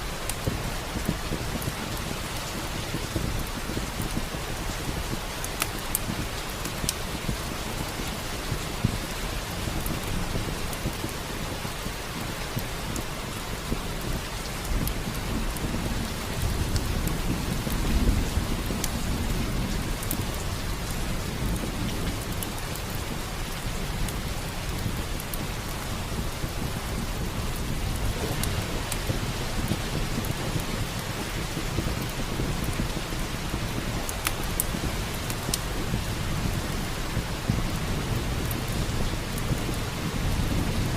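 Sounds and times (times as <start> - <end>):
heavy rain: 0.0 - 40.9
thunder rolling: 24.7 - 34.0.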